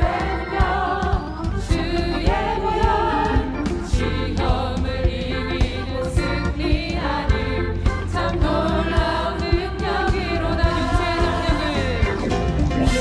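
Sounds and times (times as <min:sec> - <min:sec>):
band accompaniment: 0:00.0 - 0:13.0
choir singing a praise song: 0:00.0 - 0:13.0
steady drum beat: 0:00.0 - 0:13.0
strong bass: 0:00.0 - 0:13.0.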